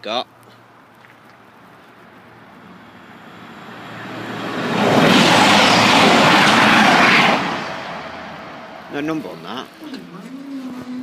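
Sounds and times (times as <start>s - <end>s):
train passing at speed: 2.5s - 9.4s.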